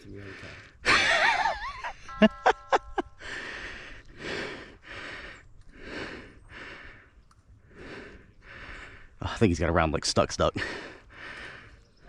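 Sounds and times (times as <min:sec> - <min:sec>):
heavy panting: 0:03.2 - 0:09.2.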